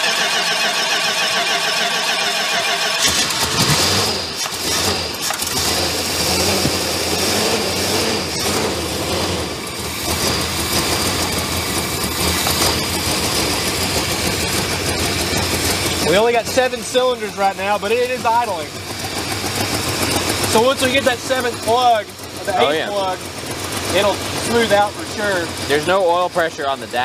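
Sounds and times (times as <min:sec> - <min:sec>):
car engine starter cranking: 0:00.0 - 0:09.4
car engine idling roughly: 0:00.0 - 0:27.0.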